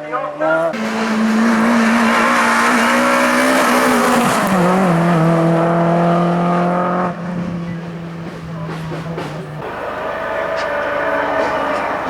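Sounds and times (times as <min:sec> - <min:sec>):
race car engine at high revs: 0:00.7 - 0:12.0.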